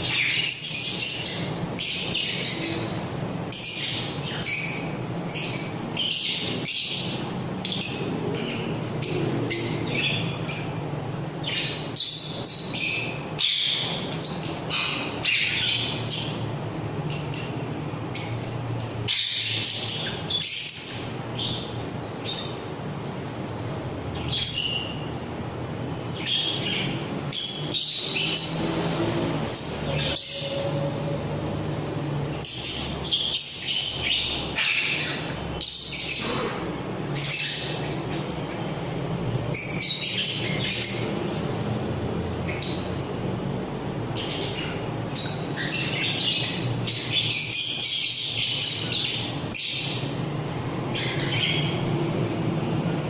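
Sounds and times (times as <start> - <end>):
parrots chirping and squawking: 0.0 - 53.0.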